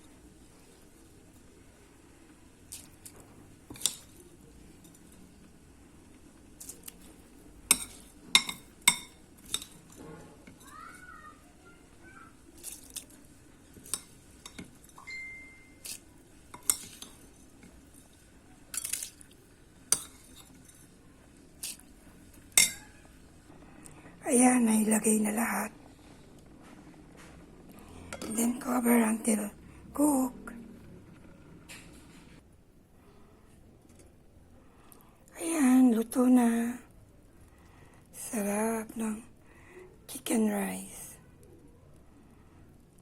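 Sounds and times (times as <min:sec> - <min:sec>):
metal utensil clinking on pot: 0:03.7 - 0:04.2, 0:07.7 - 0:10.7, 0:13.8 - 0:19.2, 0:19.9 - 0:21.0, 0:22.4 - 0:23.0, 0:28.1 - 0:28.4.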